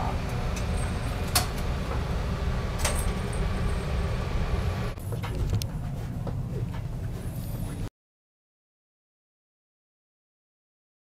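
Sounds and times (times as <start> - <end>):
train low rumble: 0.0 - 7.9.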